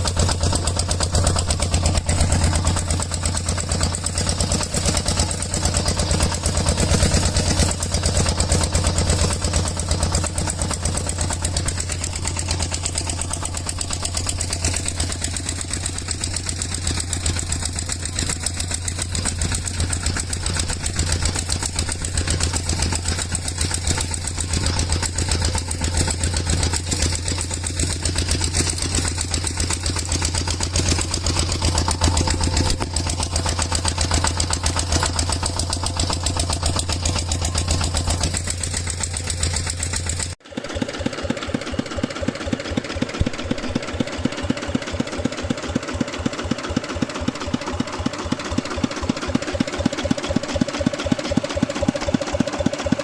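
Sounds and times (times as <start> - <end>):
small engine chugging: 0.0 - 53.0.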